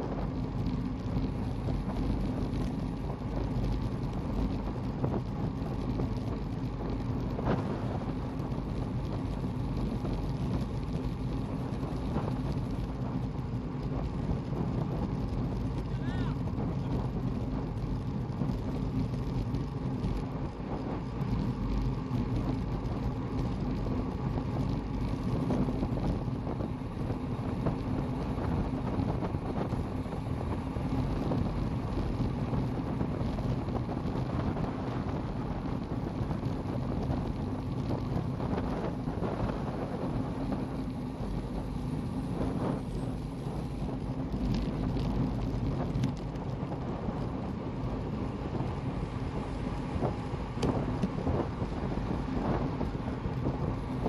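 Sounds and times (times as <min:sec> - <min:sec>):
bicycle road noise: 0:00.0 - 0:54.0
wind rushing over microphone: 0:00.0 - 0:54.0.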